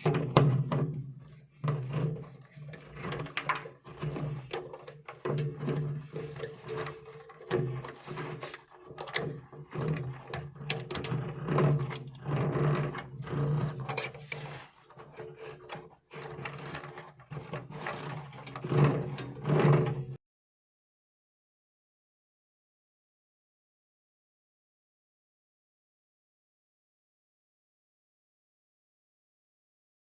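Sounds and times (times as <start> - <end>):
scraping and knocking on a fitting: 0.0 - 20.2.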